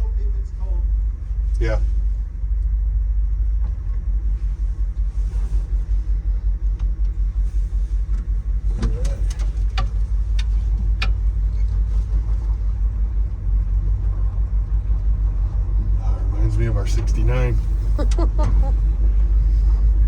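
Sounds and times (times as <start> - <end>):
truck engine rumbling: 0.0 - 20.0.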